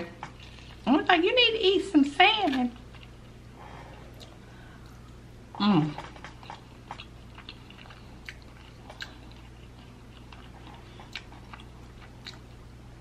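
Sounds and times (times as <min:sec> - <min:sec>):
person chewing food: 0:02.5 - 0:12.8.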